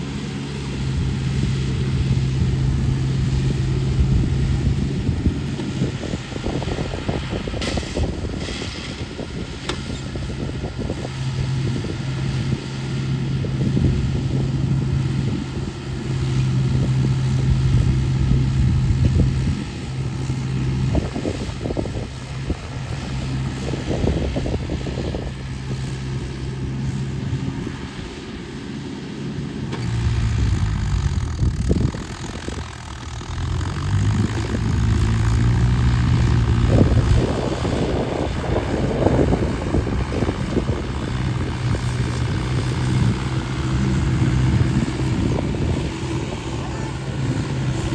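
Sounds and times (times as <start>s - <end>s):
tractor diesel engine straining: 0.0s - 47.9s.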